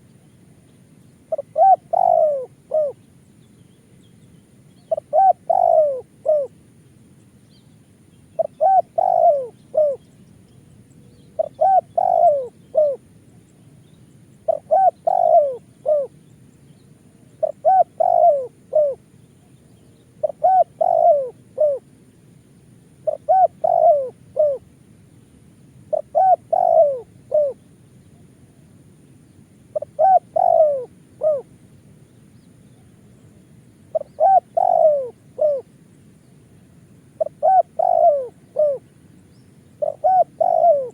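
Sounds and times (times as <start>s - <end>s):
dove cooing: 1.3s - 3.1s, 4.8s - 6.6s, 8.4s - 10.2s, 11.1s - 13.1s, 14.4s - 16.2s, 17.2s - 21.9s, 23.0s - 24.7s, 25.9s - 27.6s, 29.7s - 31.6s, 32.7s - 35.8s, 37.1s - 39.0s, 39.7s - 40.9s.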